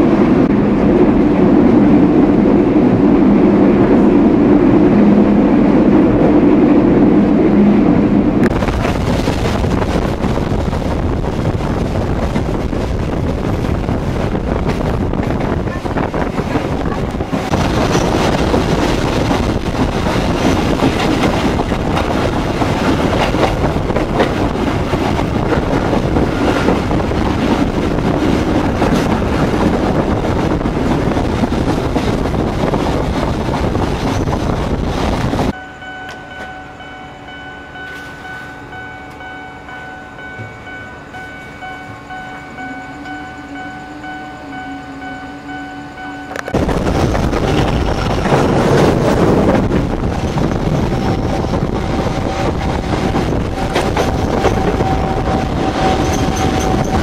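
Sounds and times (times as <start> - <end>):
passenger train running at speed: 0.0 - 57.0.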